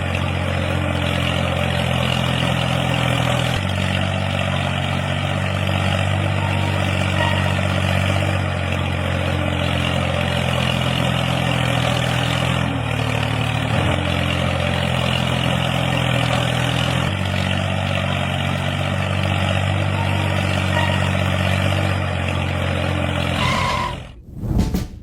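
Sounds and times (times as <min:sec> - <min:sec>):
engine idling: 0:00.0 - 0:24.2.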